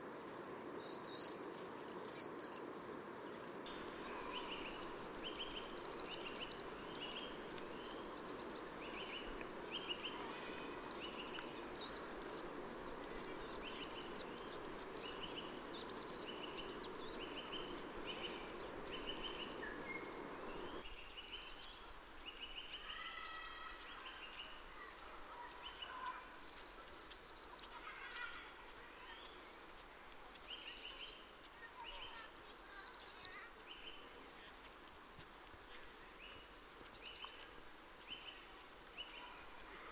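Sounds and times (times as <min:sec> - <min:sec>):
faint background hiss: 0:00.0 - 0:39.9
songbirds chirping and singing: 0:03.7 - 0:27.6.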